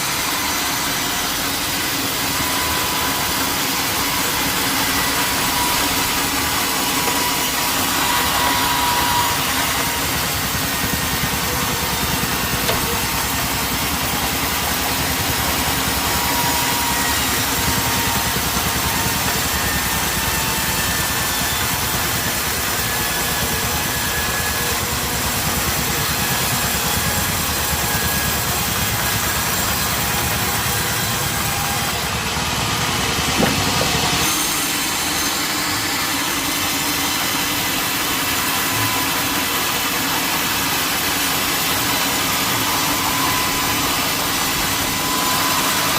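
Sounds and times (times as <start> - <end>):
sawmill machinery running: 0.0 - 45.9
sharp knock: 33.3 - 34.2.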